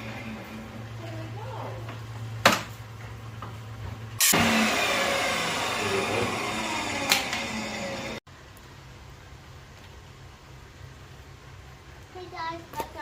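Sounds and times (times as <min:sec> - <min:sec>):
table saw running: 0:04.2 - 0:08.2.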